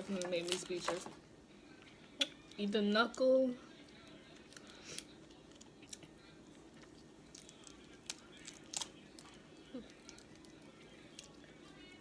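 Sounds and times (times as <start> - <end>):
crab shell cracking: 7.2 - 11.3.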